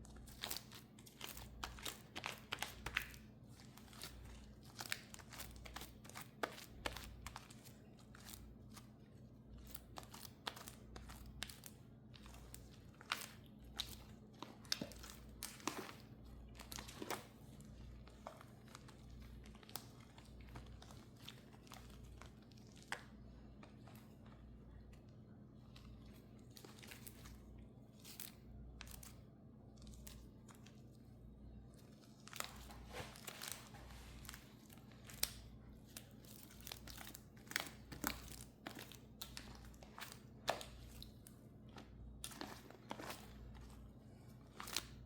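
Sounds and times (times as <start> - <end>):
slime crackling and popping: 0.0 - 8.8, 34.2 - 43.7
low background hum: 0.0 - 45.0.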